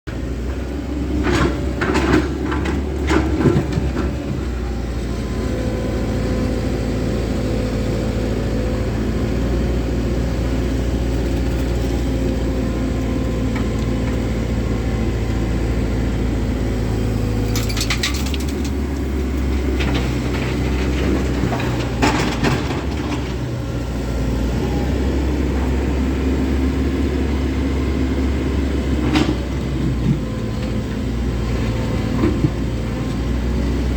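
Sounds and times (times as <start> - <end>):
excavator diesel engine running: 0.1 - 33.9
knocks and clatter: 1.2 - 4.5, 17.4 - 23.5.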